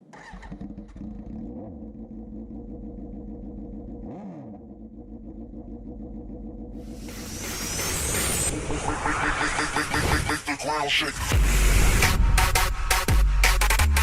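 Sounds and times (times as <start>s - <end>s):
motorcycle engine idling: 0.2s - 7.1s.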